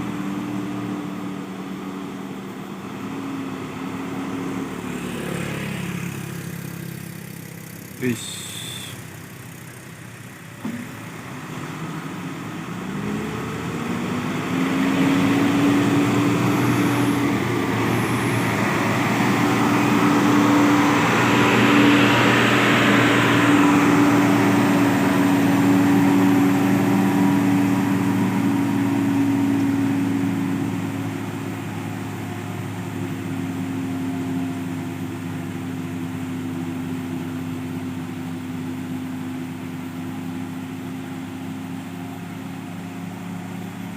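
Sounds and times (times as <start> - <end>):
truck diesel engine labouring uphill: 0.0 - 43.9.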